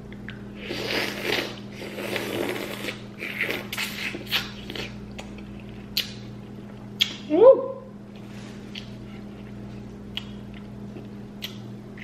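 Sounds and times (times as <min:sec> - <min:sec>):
low steady hum: 0:00.0 - 0:12.0
wet chewing and sucking: 0:00.1 - 0:07.2, 0:08.7 - 0:12.0
mouth clicks and smacks: 0:02.8 - 0:06.3, 0:07.0 - 0:07.3, 0:10.1 - 0:12.0.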